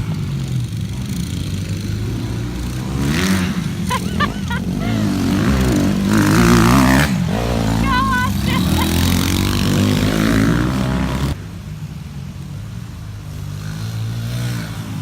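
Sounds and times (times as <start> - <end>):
pit bike engines revving: 0.0 - 11.4, 13.1 - 15.0.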